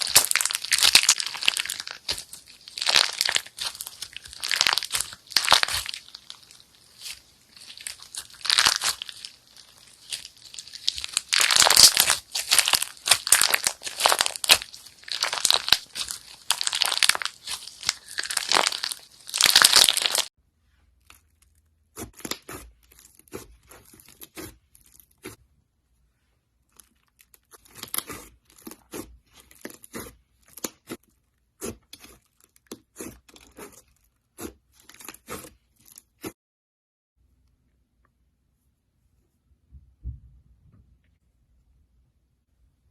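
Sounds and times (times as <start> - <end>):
slime crackling and crinkling: 0.0 - 20.3, 20.9 - 25.4, 26.5 - 36.4.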